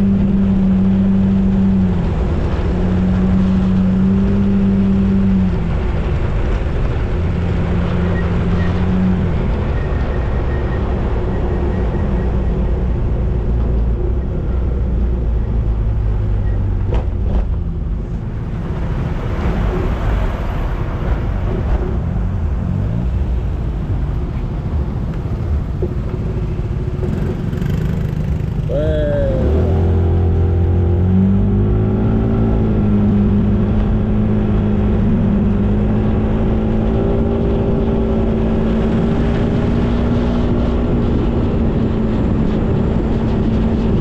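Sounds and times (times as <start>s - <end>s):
wind and road noise: 0.0s - 44.0s
motorcycle engine running: 25.3s - 30.6s.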